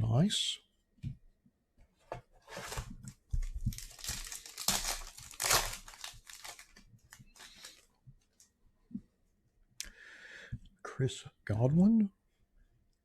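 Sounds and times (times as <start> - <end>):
foil wrapper tearing and crinkling: 3.6 - 6.8.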